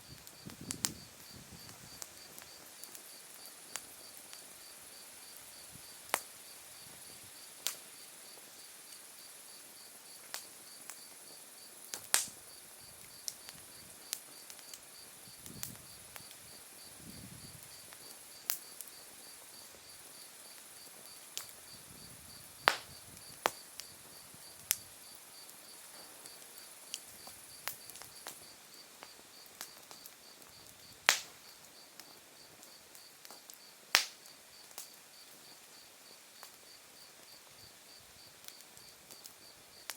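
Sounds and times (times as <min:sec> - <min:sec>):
wood fire crackling: 0:00.0 - 0:39.9
wood bursting pops: 0:31.1 - 0:31.3.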